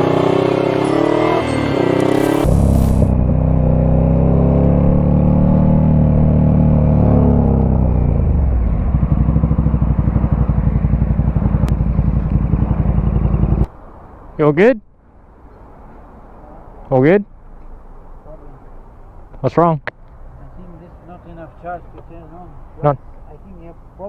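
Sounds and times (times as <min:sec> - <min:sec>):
motorcycle engine idling: 0:07.8 - 0:13.6.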